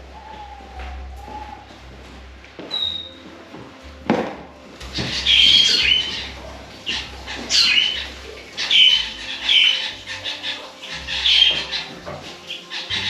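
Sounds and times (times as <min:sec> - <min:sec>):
bird squawking harshly: 0:05.0 - 0:13.0.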